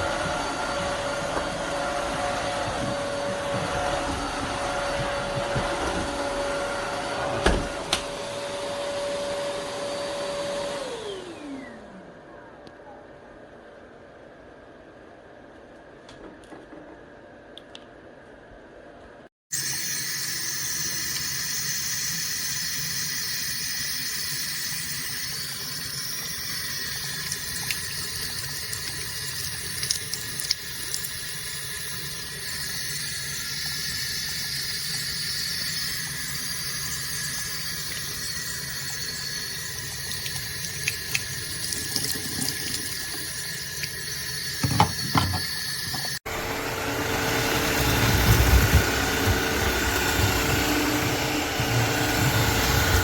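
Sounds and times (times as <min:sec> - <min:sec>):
wet-dry vacuum motor whine: 0:00.0 - 0:12.8, 0:19.6 - 0:53.0
watery hiss of water pickup: 0:20.6 - 0:44.1.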